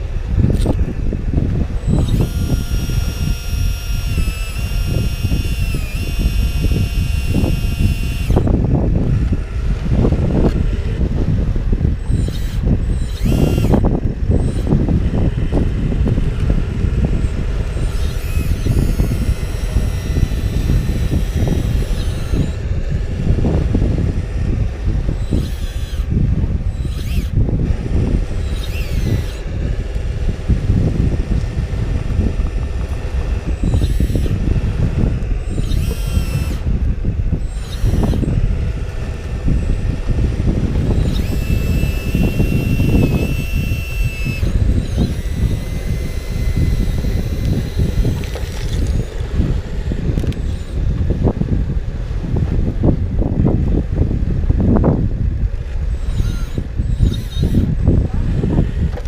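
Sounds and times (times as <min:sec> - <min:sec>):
electric motors whining: 0:00.0 - 0:59.0
heavy low rumble: 0:00.0 - 0:59.0.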